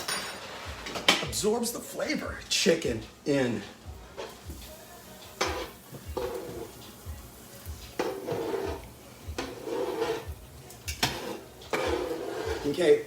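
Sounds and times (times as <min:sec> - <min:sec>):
background music with low beat: 0:00.6 - 0:13.0
utensil scraping in a pan: 0:03.6 - 0:13.0.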